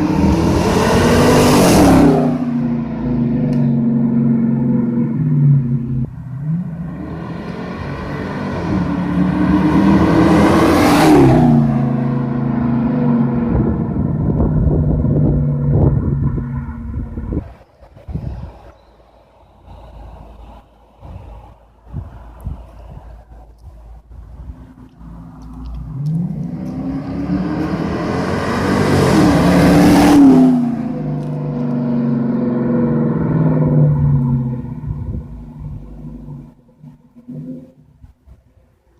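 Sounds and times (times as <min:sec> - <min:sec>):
car exhaust accelerating past: 0:00.0 - 0:17.5, 0:24.6 - 0:37.9
car driving past: 0:24.6 - 0:37.8.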